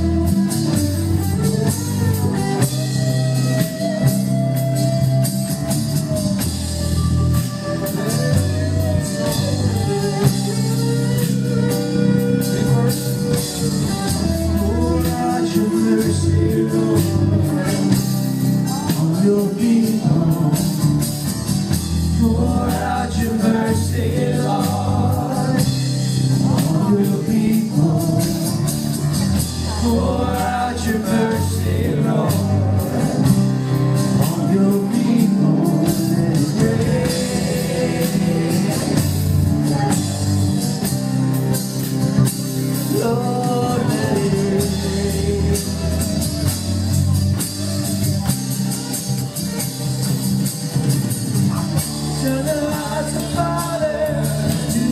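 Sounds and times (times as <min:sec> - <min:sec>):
worship band playing: 0:00.0 - 0:54.9
person singing: 0:07.8 - 0:21.0, 0:22.1 - 0:40.8, 0:42.8 - 0:46.5, 0:51.5 - 0:54.9.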